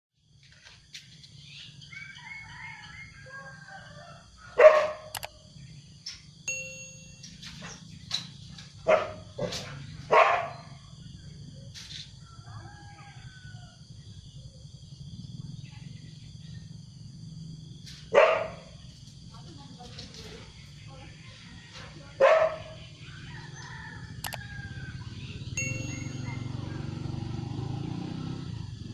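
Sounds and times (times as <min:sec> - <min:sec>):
dog barking: 0:04.6 - 0:05.2, 0:08.8 - 0:10.8, 0:18.1 - 0:18.8, 0:22.2 - 0:23.0
high-pitched drone: 0:25.1 - 0:27.5.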